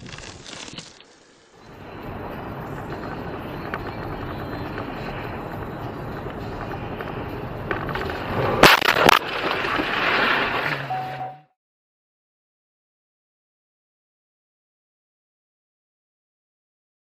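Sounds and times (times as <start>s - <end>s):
car road and engine noise: 0.4s - 11.5s.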